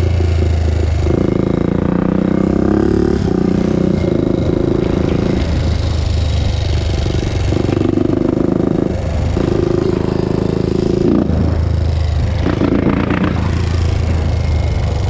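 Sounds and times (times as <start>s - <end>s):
four-stroke engine revving: 0.0s - 15.0s.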